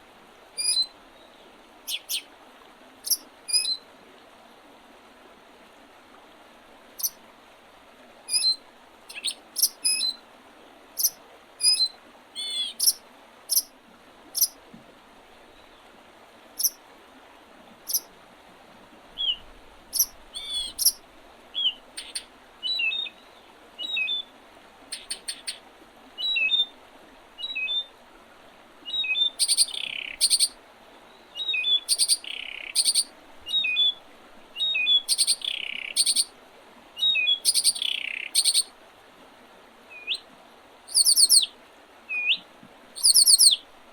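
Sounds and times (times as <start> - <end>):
songbirds chirping: 0.6 - 2.3, 8.3 - 10.2, 11.0 - 13.7, 19.1 - 25.6, 28.8 - 36.3, 37.0 - 38.7, 40.9 - 41.5, 42.1 - 43.6
bird song with falling trill: 20.0 - 21.0, 40.9 - 41.5, 43.0 - 43.6.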